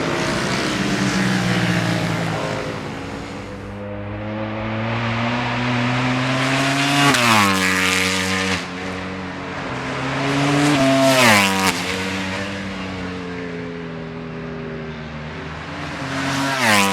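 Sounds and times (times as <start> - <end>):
low engine drone: 0.0 - 6.5
motorcycles passing at racing speed: 0.0 - 16.9.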